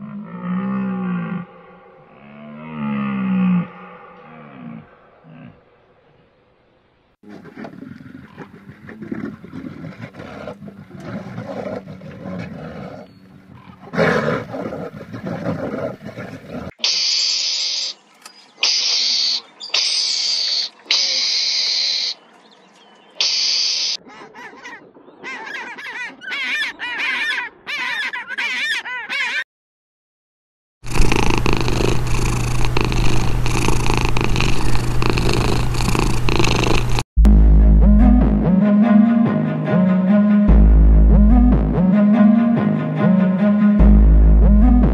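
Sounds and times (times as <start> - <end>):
bear growling: 7.2 - 16.7, 30.9 - 37.0
mongoose shrill calls: 16.8 - 18.0, 18.6 - 22.2, 23.2 - 29.4
cat purring: 30.9 - 37.0.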